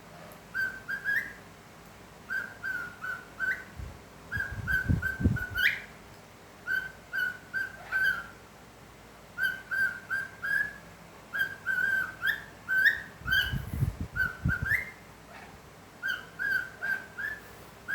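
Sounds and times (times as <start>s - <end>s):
parrot whistling: 0.5s - 1.4s, 2.3s - 3.7s, 6.7s - 8.3s, 9.4s - 13.6s, 16.0s - 17.4s.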